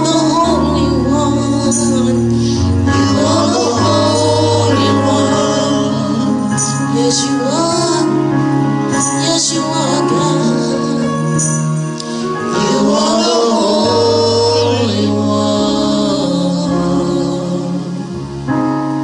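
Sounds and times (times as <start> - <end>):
voices singing gospel: 0.0 - 18.7
low bass notes: 0.0 - 19.0.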